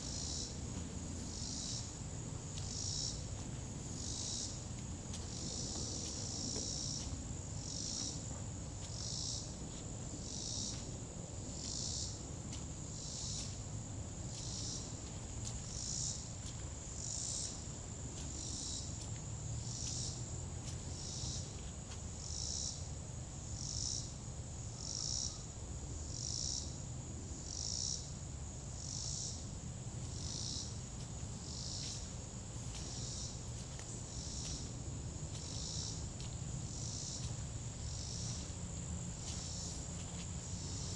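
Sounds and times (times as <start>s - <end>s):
insect high-pitched trill: 11.6s - 12.2s, 28.8s - 40.9s
pulsing insect call: 28.8s - 40.9s.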